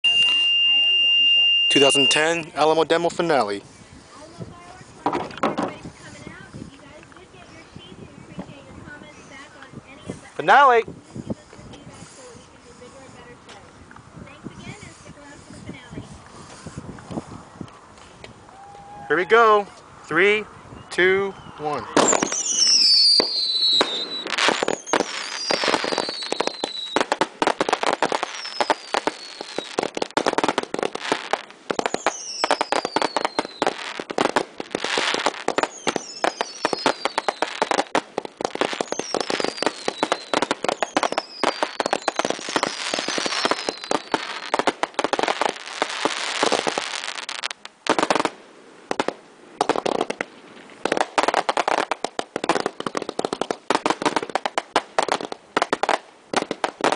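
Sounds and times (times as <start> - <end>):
falling firework whistles: 0.0 - 2.4, 21.3 - 48.3
firework bangs and crackling: 0.0 - 19.2, 21.6 - 56.9.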